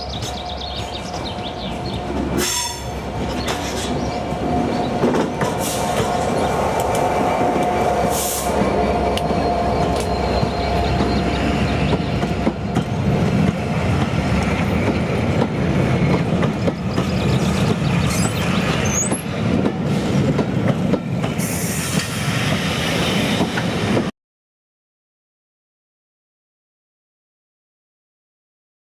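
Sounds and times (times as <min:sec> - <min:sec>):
train wheels on track: 0:00.0 - 0:24.1
high wheel squeal: 0:18.0 - 0:19.3.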